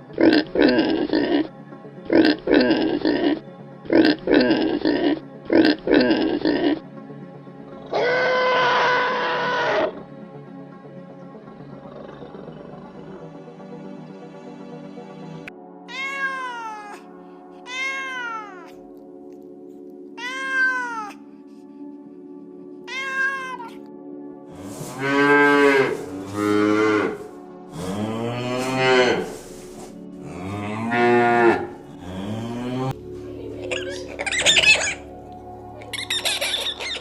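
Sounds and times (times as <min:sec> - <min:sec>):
background music: 0:00.0 - 0:37.0
cat meowing: 0:15.9 - 0:17.0, 0:17.6 - 0:18.8, 0:20.2 - 0:21.2, 0:22.9 - 0:23.9.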